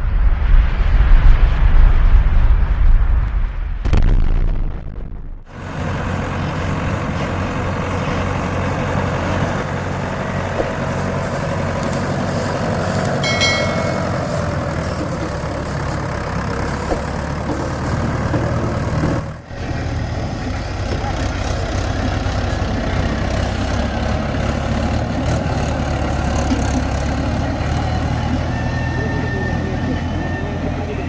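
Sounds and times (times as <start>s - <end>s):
tractor diesel engine running: 5.5s - 31.0s
high-pitched tone: 13.2s - 14.7s.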